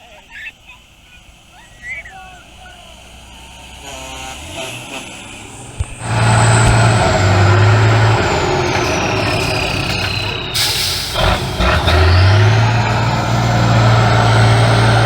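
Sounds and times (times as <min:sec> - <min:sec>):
truck engine working hard: 0:00.5 - 0:15.0
high whine falling in pitch: 0:06.0 - 0:15.0.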